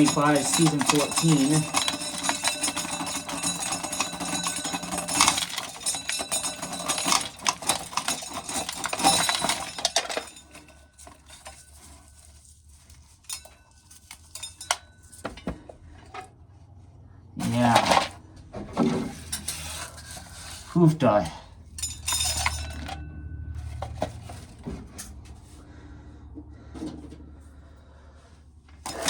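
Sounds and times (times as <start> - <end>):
corn kernels rattling into metal can: 0.0 - 14.8, 17.4 - 18.2.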